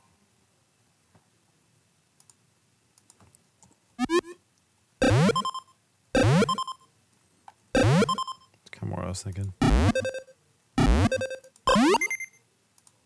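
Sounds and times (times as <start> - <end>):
computer mouse and keyboard clicks: 2.2 - 2.4, 3.0 - 3.8, 9.3 - 9.6, 12.8 - 13.0.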